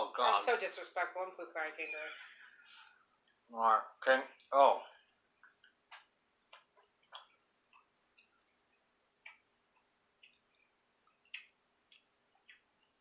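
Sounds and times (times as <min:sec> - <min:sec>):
person chewing jerky: 0:06.5 - 0:13.0.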